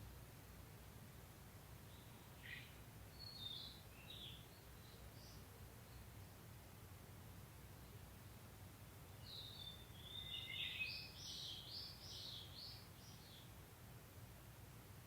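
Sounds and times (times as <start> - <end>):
warbler singing: 1.9 - 6.1, 9.2 - 13.5.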